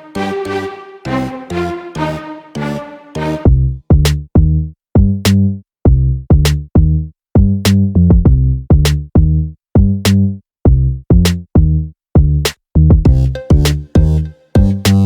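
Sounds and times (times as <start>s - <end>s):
electronic music with drum-machine beat: 13.0s - 15.0s.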